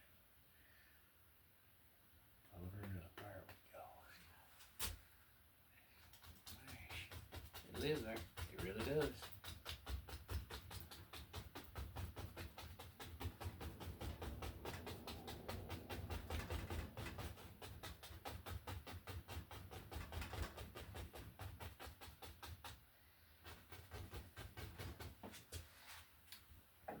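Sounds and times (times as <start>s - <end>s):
brush tapping on canvas: 6.1s - 22.8s, 23.4s - 25.7s.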